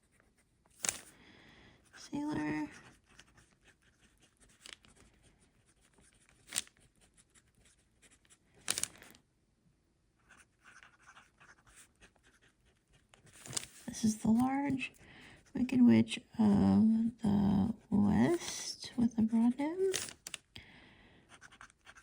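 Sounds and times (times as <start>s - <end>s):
pen scratching on paper: 1.8s - 8.4s, 10.2s - 15.0s, 21.3s - 22.0s.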